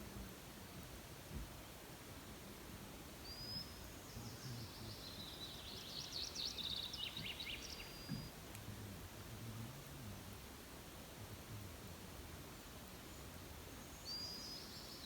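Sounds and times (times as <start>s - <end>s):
steady hiss: 0.0s - 15.0s
songbird singing: 3.2s - 10.4s, 12.5s - 15.0s.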